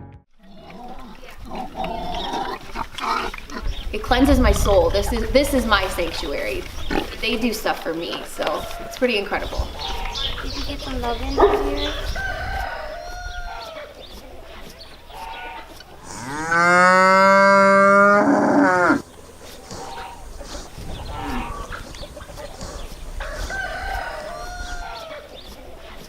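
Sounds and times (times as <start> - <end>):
cow mooing: 16.0 - 19.0
faint animal calls: 17.9 - 23.5.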